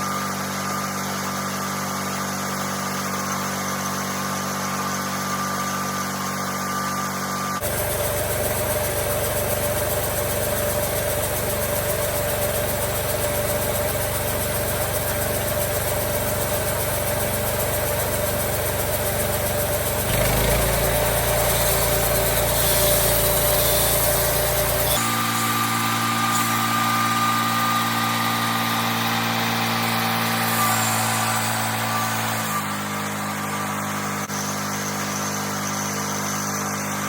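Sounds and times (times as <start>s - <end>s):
sawmill engine droning: 0.0s - 37.0s.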